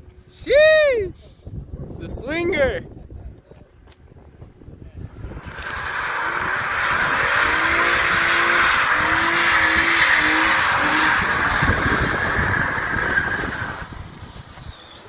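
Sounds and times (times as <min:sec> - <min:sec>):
car tires squealing: 0:05.2 - 0:15.0.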